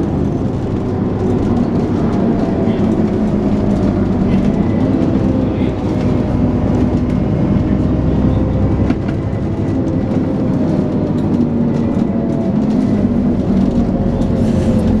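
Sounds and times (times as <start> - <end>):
bus diesel engine with whine: 0.0 - 15.0
interior rattles clicking: 0.3 - 8.0.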